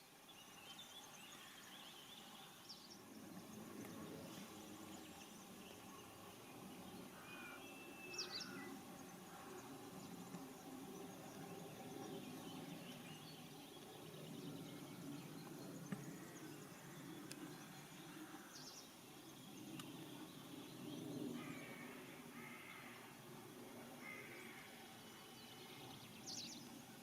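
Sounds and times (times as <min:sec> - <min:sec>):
bird calls: 0:04.3 - 0:10.5.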